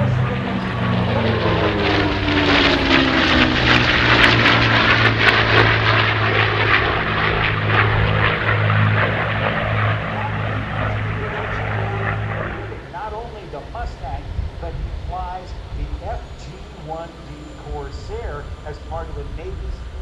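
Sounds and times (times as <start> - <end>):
propeller plane engines passing: 0.0 - 20.0.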